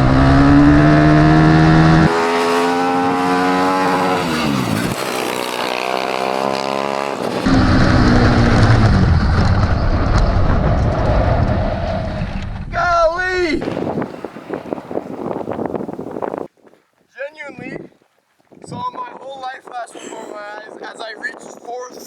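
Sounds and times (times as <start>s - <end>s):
loud rushing noise: 1.2s - 12.8s.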